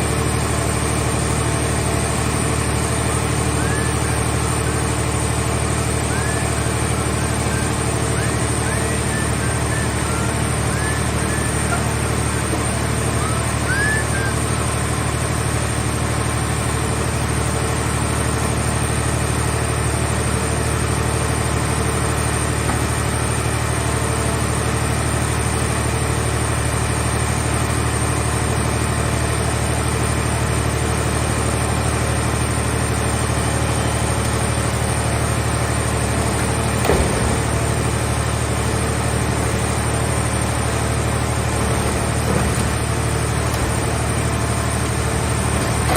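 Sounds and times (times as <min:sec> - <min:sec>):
power unit humming: 0:00.0 - 0:45.9.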